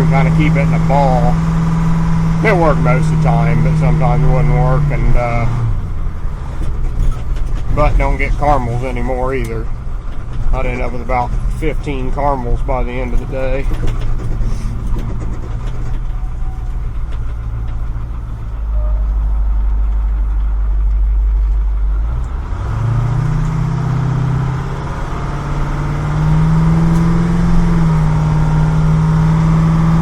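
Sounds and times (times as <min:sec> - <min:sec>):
truck engine running: 0:00.0 - 0:30.0.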